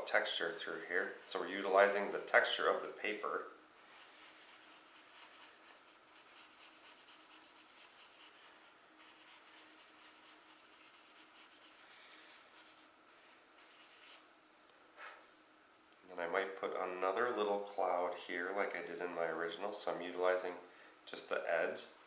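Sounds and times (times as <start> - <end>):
charcoal scratching on paper: 0.2 - 2.8, 3.8 - 14.2.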